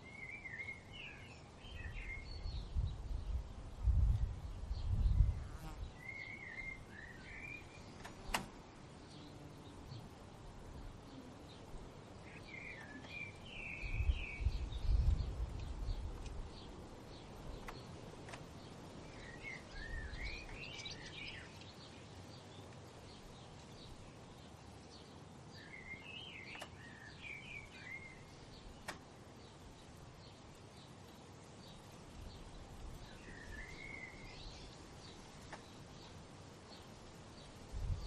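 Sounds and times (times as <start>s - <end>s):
low rumble of wind: 0.0s - 38.0s
steady outdoor hiss: 0.0s - 38.0s
songbird warbling: 19.0s - 22.0s.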